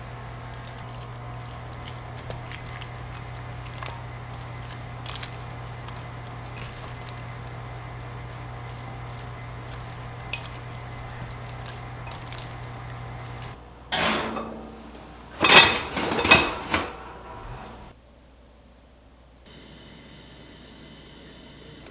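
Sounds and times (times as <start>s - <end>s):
steady low hum: 0.0s - 18.0s
cookware and utensils clinking: 0.5s - 17.9s.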